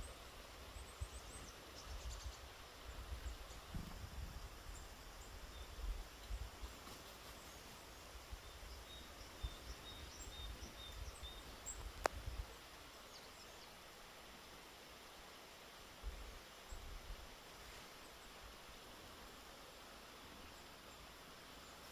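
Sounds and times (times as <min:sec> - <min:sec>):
small birds calling: 0:00.0 - 0:13.8.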